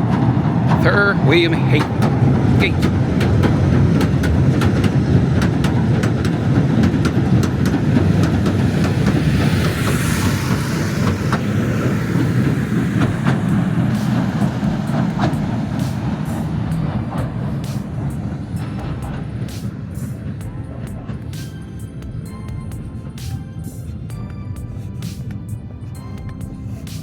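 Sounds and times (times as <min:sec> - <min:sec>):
train rumbling past: 0:00.0 - 0:27.0
wheels clicking over rail joints: 0:00.0 - 0:27.0
hiss: 0:07.8 - 0:20.5, 0:24.8 - 0:27.0.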